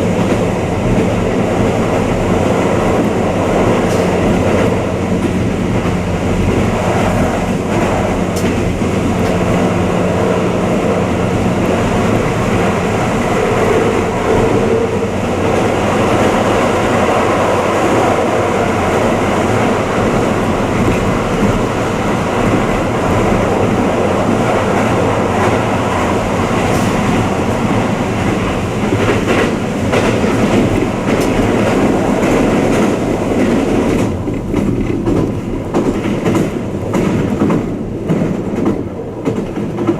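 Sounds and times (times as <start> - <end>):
train interior rumble and hum: 0.0 - 39.9
wheels clicking over rail joints: 0.0 - 39.9.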